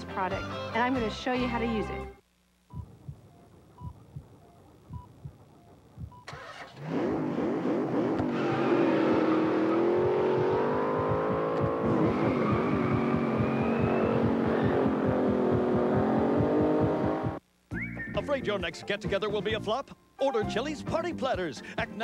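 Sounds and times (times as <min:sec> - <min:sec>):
heartbeat thumps: 0:02.6 - 0:06.3, 0:09.9 - 0:17.9
car engine revving: 0:06.2 - 0:17.4.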